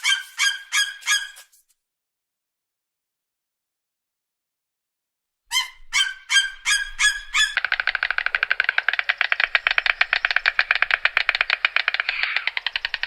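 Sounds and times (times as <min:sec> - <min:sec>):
bird honking: 0:05.5 - 0:08.3
bird chattering: 0:05.5 - 0:13.0.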